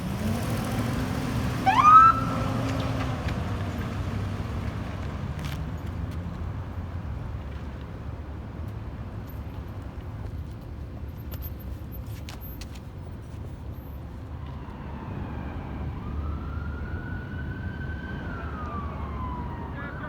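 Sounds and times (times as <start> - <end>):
traffic rumble: 0.0 - 20.0
fire engine siren wailing: 0.2 - 3.3, 14.4 - 20.0.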